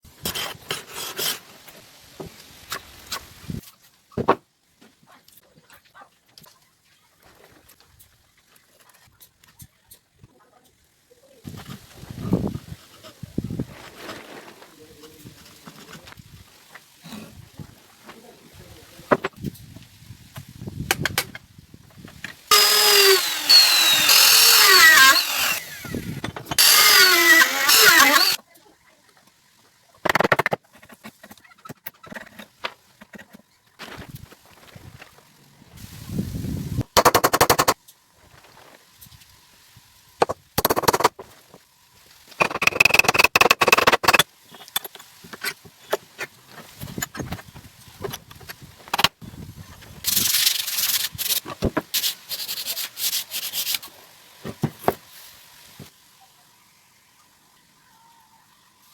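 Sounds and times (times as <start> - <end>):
power drill cutting wood: 22.5 - 28.4.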